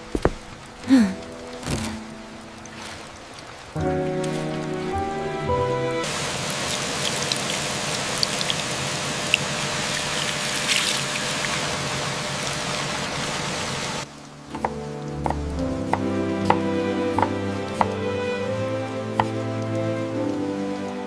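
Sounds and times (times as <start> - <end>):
raindrops ticking: 0.0 - 5.4, 6.0 - 13.0, 14.0 - 18.2, 18.8 - 21.0
music: 0.0 - 6.1, 14.1 - 21.0
plucked notes: 0.0 - 6.1
steady rain falling: 0.0 - 21.0.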